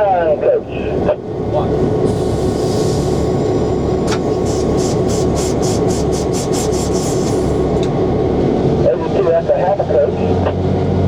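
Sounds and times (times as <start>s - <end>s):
diesel locomotive engine running: 0.0s - 11.0s.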